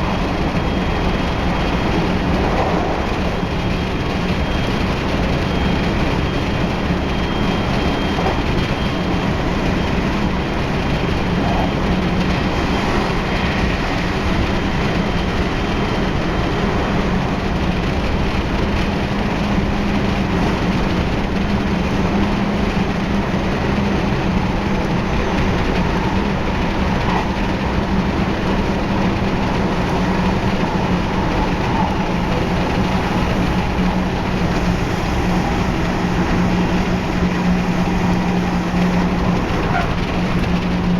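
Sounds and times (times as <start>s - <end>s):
train wheels rumbling on rail: 0.0s - 40.9s.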